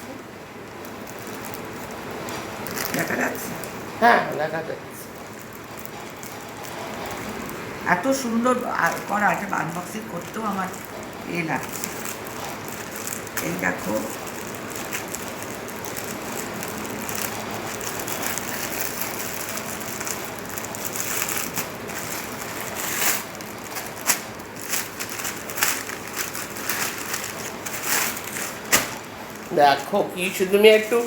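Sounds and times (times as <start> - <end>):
gift packaging rustling: 0.7 - 31.0.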